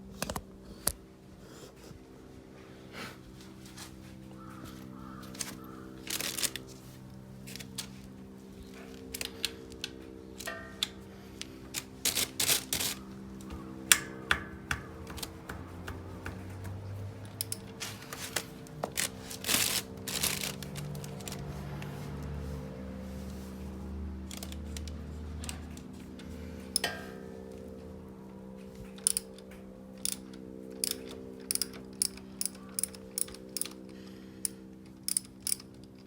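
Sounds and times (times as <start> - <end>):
tools clicking and clinking: 11.7 - 21.4, 26.7 - 27.5, 28.9 - 36.0.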